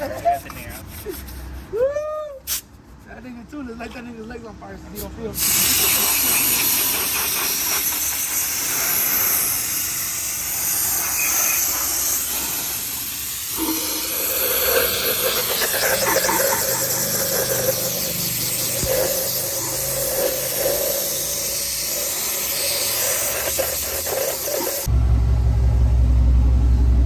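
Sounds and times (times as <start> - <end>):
gas hissing from a nozzle: 5.4 - 24.9
mechanical drone: 10.5 - 27.0.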